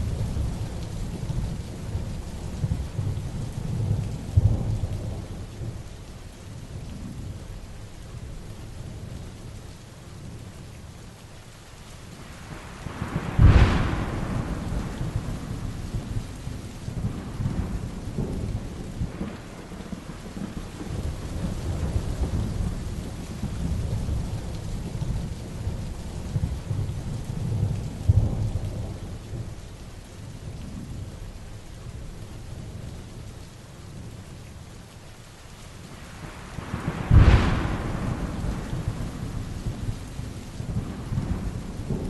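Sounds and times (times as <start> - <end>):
heavy rain falling: 0.0 - 42.0
thunderclap and rumbling: 12.4 - 29.6, 36.1 - 42.0.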